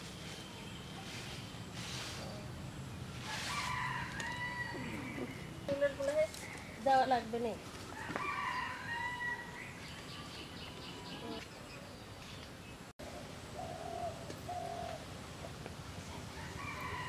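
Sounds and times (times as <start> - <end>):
birds calling: 3.2 - 15.2.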